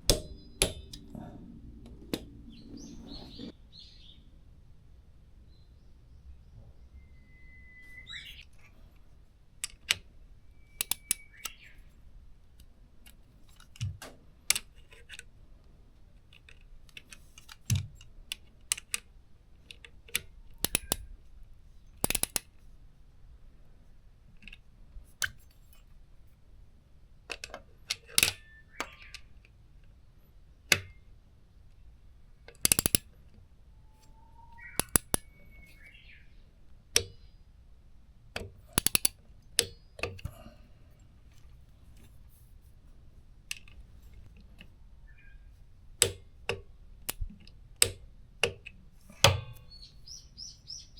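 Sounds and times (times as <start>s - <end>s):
metallic clinks of hand tools: 32.6s - 33.0s.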